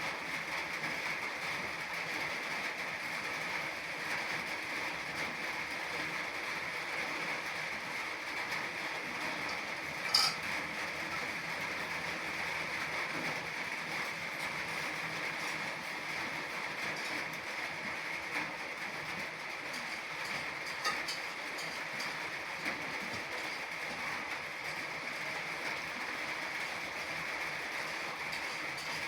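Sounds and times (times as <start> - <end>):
rain falling: 0.0 - 29.0.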